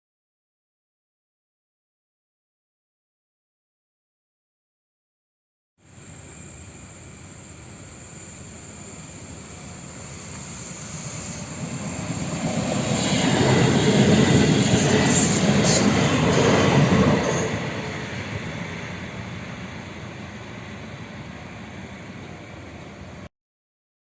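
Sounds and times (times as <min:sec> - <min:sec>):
electric train passing: 0:05.8 - 0:23.3.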